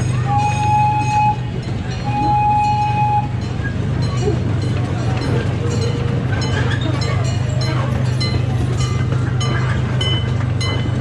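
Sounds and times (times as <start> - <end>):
miniature train engine drone: 0.0 - 11.0
train horn tooting: 0.2 - 3.4.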